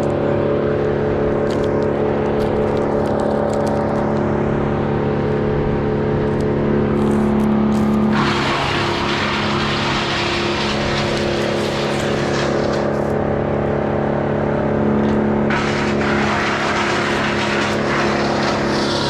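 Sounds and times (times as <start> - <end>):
chainsaw running at high revs: 7.0 - 13.2, 15.5 - 19.0
chainsaw rasping through wood: 7.8 - 13.2, 15.5 - 19.0.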